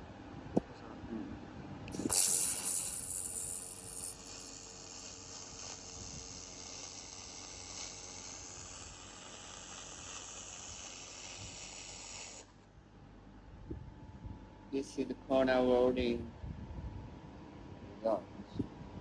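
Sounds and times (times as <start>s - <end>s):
laser welder hiss: 1.9s - 12.5s.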